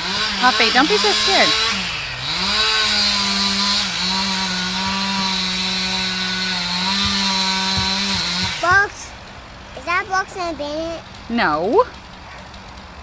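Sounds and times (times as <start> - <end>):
chainsaw engine running: 0.0 - 13.0.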